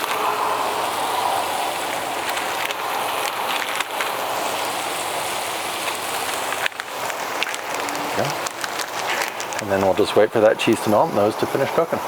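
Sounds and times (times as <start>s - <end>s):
burger patties sizzling on griddle: 0.0s - 12.0s
fat popping: 5.8s - 10.9s.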